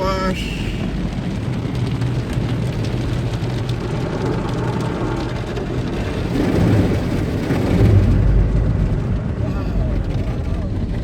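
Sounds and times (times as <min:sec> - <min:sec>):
water spraying on car body: 0:00.4 - 0:11.0.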